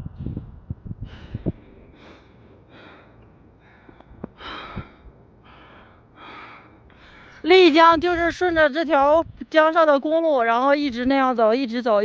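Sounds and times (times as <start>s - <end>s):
person breathing hard: 1.0s - 7.5s.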